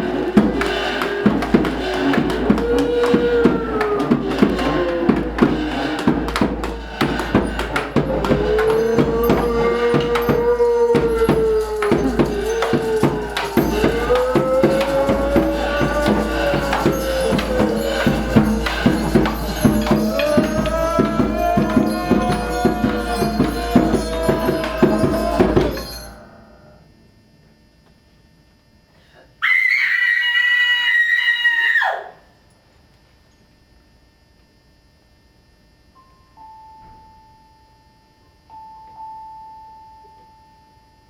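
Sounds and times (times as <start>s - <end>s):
rapid percussion strokes: 0.0s - 26.3s.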